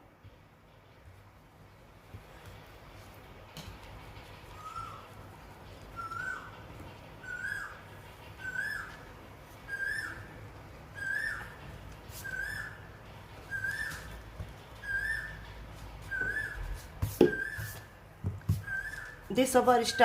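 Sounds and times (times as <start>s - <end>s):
whistled rising and falling note: 14.8s - 17.9s.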